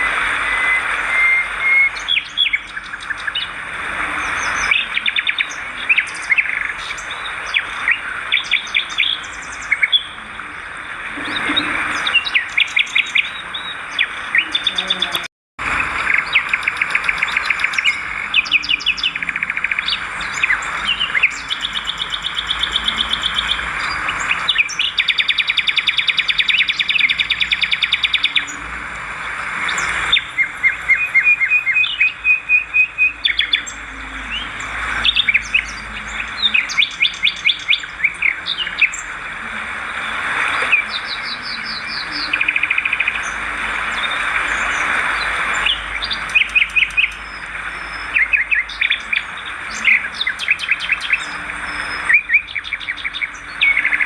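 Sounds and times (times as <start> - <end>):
swiftlets twittering: 0.0 - 54.0.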